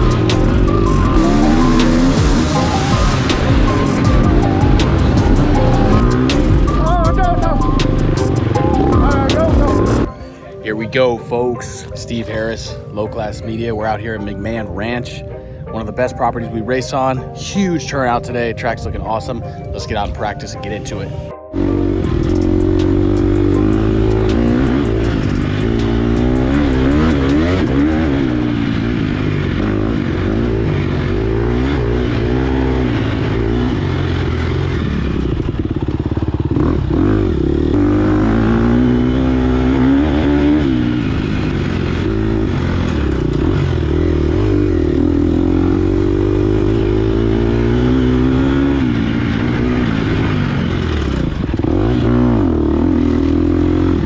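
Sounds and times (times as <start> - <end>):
dirt bike engine revving: 0.0 - 10.1, 21.5 - 54.0.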